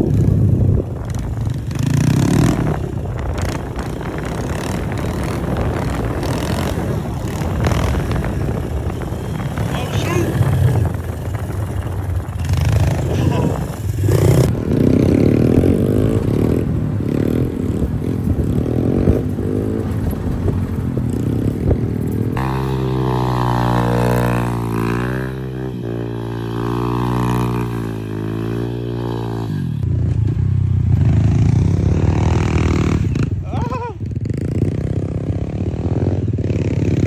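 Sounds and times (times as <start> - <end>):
clatter: 0.0 - 22.7
dirt bike engines revving: 0.0 - 37.0.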